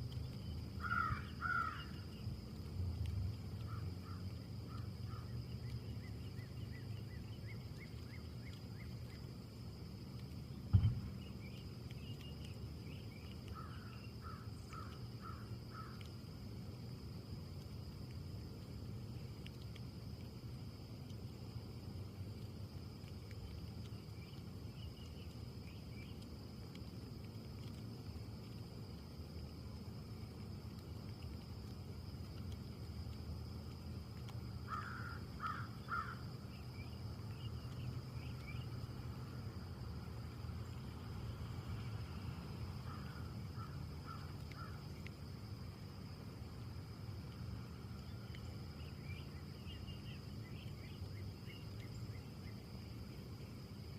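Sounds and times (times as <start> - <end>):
high insect trill: 0.0 - 53.9
low background rumble: 0.0 - 53.9
wind in trees: 0.0 - 53.9
dull thump: 10.7 - 11.2.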